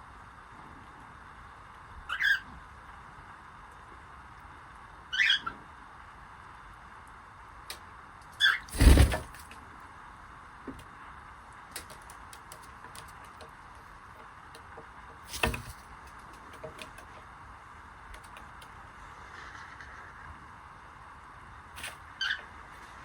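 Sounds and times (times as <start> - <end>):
cockatiel chirp: 2.1 - 2.5, 5.1 - 5.6, 8.4 - 8.7, 22.2 - 22.5
small clicks and taps: 11.7 - 13.6, 18.1 - 18.7.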